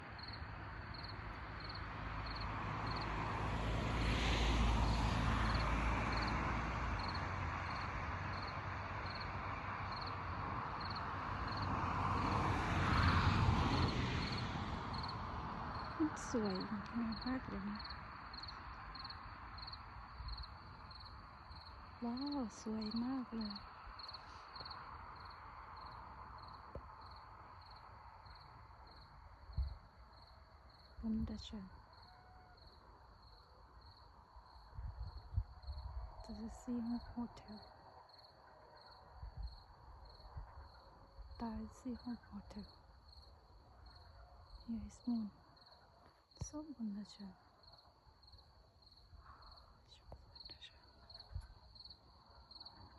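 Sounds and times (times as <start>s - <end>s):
insect chirping: 0.2s - 3.1s, 7.0s - 9.3s, 9.9s - 10.2s, 10.8s - 12.3s, 13.8s - 31.0s, 31.9s - 36.5s, 37.6s - 41.4s, 42.6s - 47.0s, 47.6s - 52.9s.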